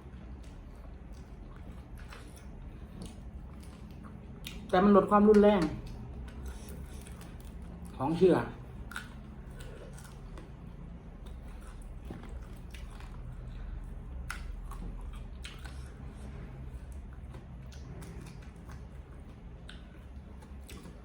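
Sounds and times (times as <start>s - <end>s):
low steady hum: 0.0s - 21.0s
person chewing food: 0.0s - 21.0s.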